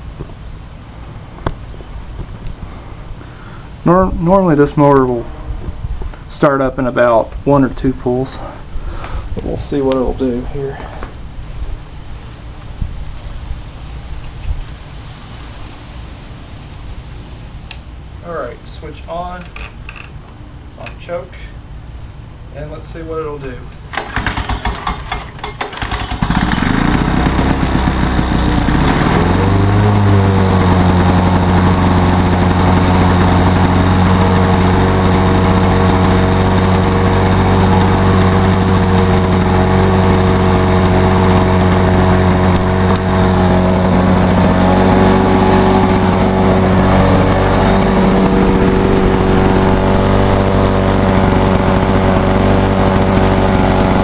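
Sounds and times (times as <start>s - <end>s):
two-stroke mower engine running: 23.9s - 54.0s.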